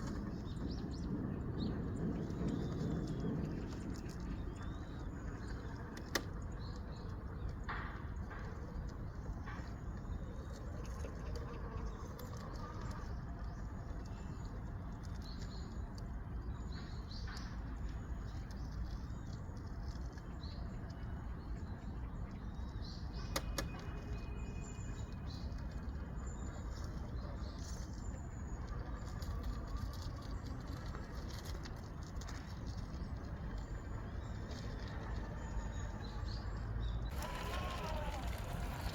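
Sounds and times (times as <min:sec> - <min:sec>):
steady low rumble: 0:00.0 - 0:23.2.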